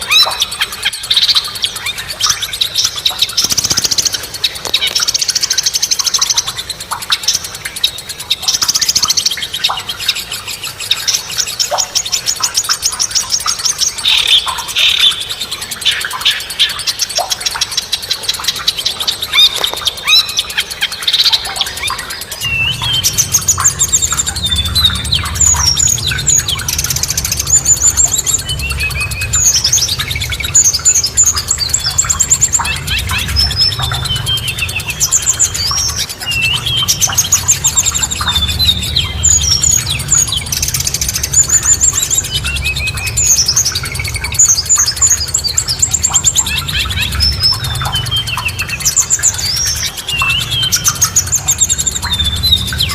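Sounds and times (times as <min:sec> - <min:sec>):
songbirds chirping and singing: 0:00.0 - 0:52.9
low rumble: 0:22.4 - 0:52.9.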